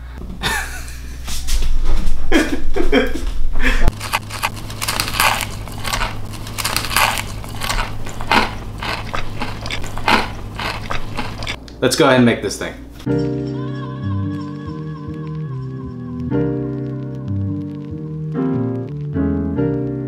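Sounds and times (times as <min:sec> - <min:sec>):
crunching fried chicken: 0:03.9 - 0:11.6.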